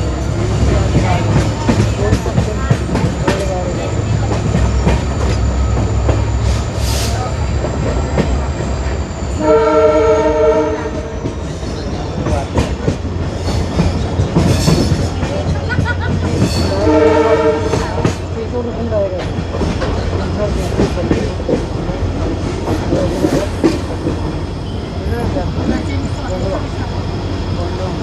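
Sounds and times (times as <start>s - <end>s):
diesel locomotive engine hum: 0.0s - 28.0s
train wheels rattling: 0.0s - 28.0s
multi-note train horn: 9.4s - 11.2s, 16.8s - 18.2s.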